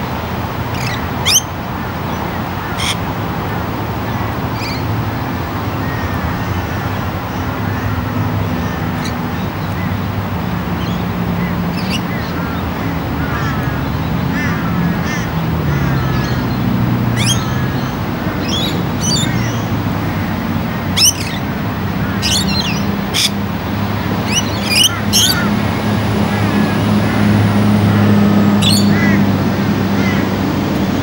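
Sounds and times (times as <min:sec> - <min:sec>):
low engine hum: 0:00.0 - 0:31.0
birds chirping and squawking: 0:00.7 - 0:05.0, 0:05.8 - 0:30.9.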